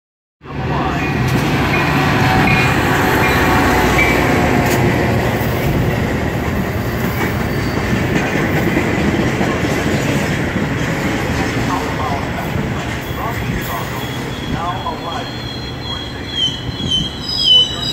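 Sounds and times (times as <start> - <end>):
train wheels on rails: 0.9 - 17.9
high brake squeals: 13.9 - 17.9.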